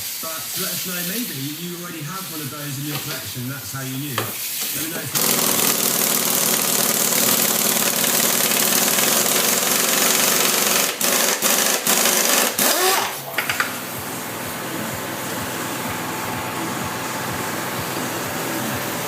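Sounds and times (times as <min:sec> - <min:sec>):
power tool rattling: 0:05.1 - 0:13.9
power tool winding down whine: 0:05.1 - 0:19.0.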